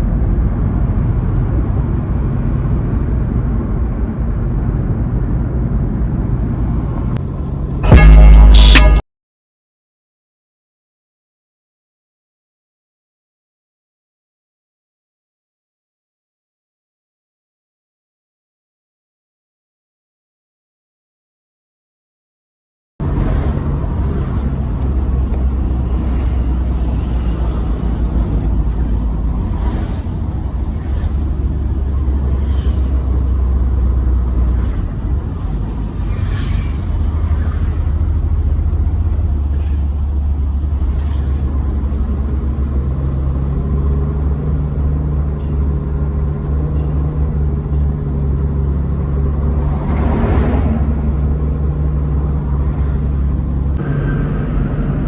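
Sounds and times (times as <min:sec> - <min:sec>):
steady engine hum: 0:00.0 - 0:09.0, 0:23.0 - 0:55.0
truck engine rumble: 0:00.0 - 0:09.0, 0:23.0 - 0:55.0.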